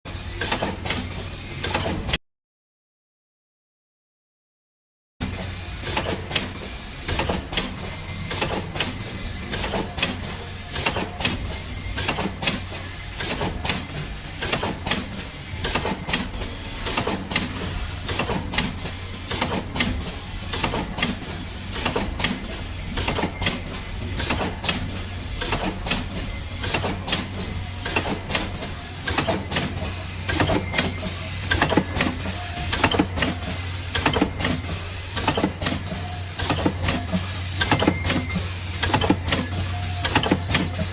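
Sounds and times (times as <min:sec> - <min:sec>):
machine mechanism clacking: 0:00.4 - 0:02.2, 0:05.2 - 0:40.9
packing machine humming: 0:05.2 - 0:40.9.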